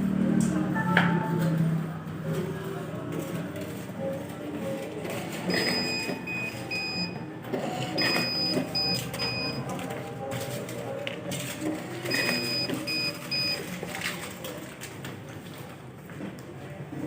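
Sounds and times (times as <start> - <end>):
printer motor whining: 5.0 - 9.6, 11.6 - 13.6.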